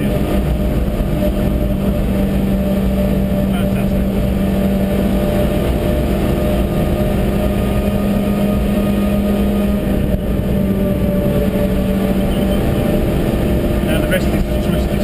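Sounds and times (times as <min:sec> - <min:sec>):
car engine under load: 0:00.0 - 0:15.0
road and wind noise: 0:00.0 - 0:15.0.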